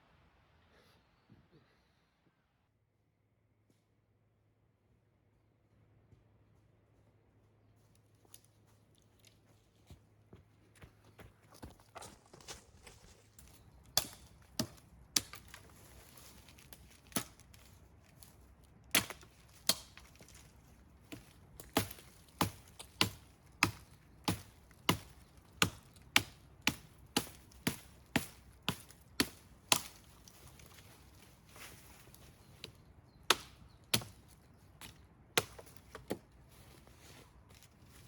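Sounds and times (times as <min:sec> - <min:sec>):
wood chopping strikes: 0:13.4 - 0:18.3, 0:18.9 - 0:36.9.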